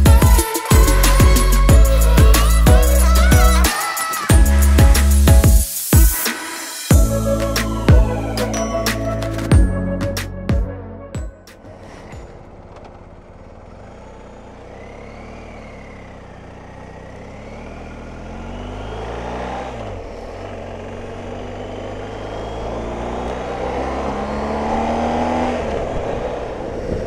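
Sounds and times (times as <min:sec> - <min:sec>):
motorcycle engine running: 0:00.0 - 0:06.1, 0:12.1 - 0:27.0
wind rush: 0:25.7 - 0:27.0.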